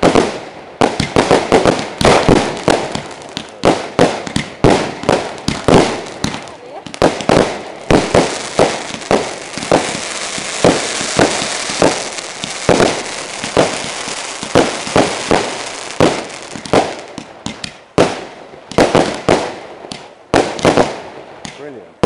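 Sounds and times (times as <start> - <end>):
fireworks bangs: 0.0 - 21.8
fireworks hiss: 1.0 - 17.2.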